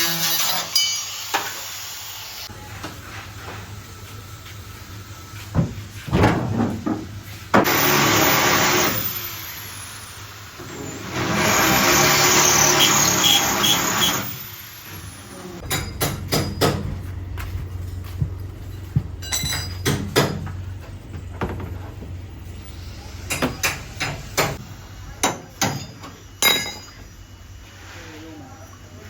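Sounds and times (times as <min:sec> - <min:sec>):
hammer blows on car bodywork: 0:15.6 - 0:17.0.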